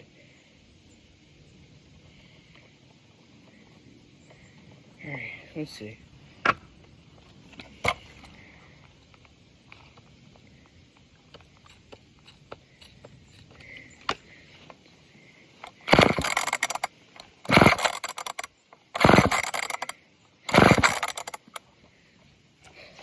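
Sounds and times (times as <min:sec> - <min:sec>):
recoil starter pulls: 0:15.6 - 0:21.6
chainsaw engine turning over: 0:15.6 - 0:21.7.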